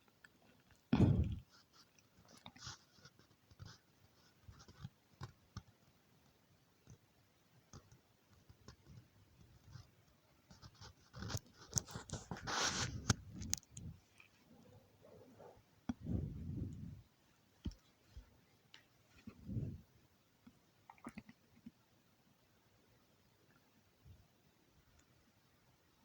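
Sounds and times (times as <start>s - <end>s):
wire scratching and clicking: 7.7s - 14.3s.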